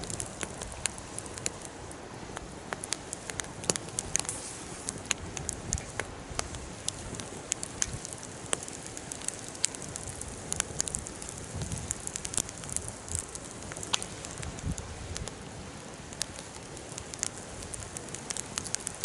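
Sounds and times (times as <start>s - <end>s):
bonfire crackling: 0.0s - 19.0s.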